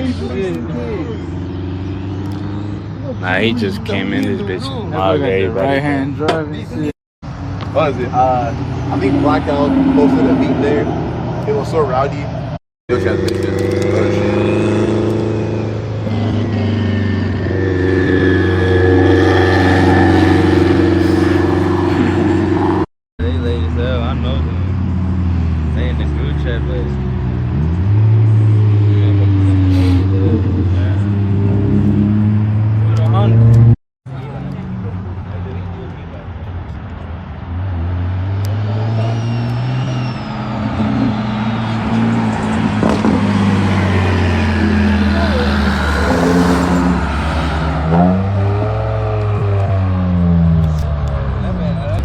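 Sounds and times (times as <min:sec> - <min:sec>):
car engine running: 0:41.2 - 0:48.4.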